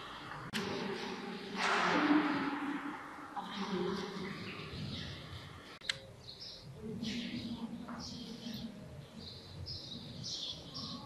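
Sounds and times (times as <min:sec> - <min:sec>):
murmur of distant voices: 0:03.3 - 0:11.0
birds chirping: 0:03.5 - 0:11.0.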